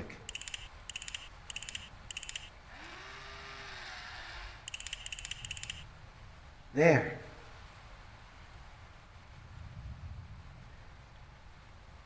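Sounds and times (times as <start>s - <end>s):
rapid ratcheting clicks: 0.0s - 2.5s, 4.7s - 5.8s
faint low whirring tone: 0.0s - 6.5s.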